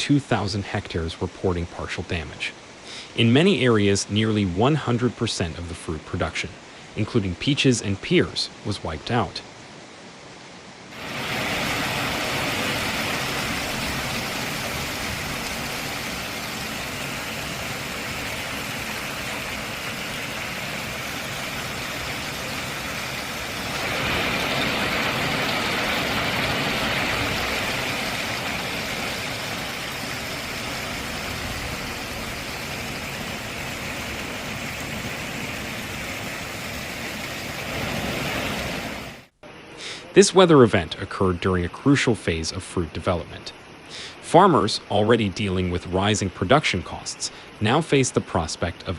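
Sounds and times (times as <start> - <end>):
heavy hail falling: 11.0 - 36.4.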